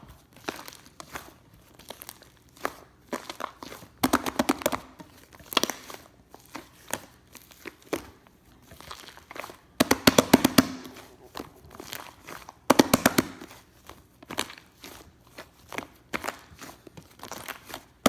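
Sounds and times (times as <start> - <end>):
slime squeezed crackling pops: 9.0 - 13.7.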